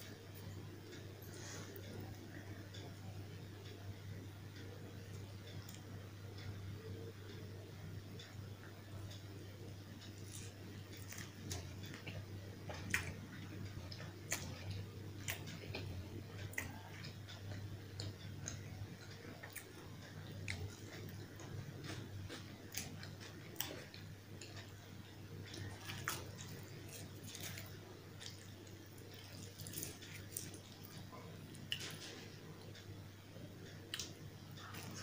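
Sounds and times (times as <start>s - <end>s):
faint low hum: 0.0s - 35.0s
person chewing food: 9.1s - 35.0s.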